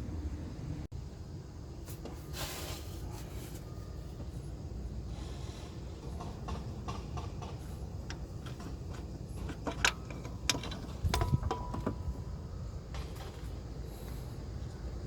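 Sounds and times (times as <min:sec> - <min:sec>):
hand tools clinking on metal: 0:06.6 - 0:12.2.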